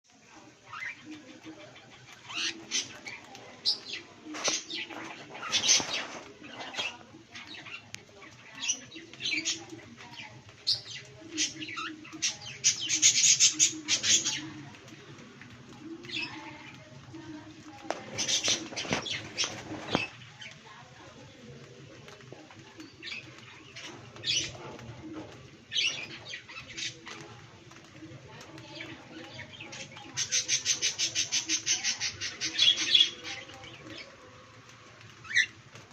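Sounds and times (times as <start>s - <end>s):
cockatiels chirping: 0.7s - 7.9s.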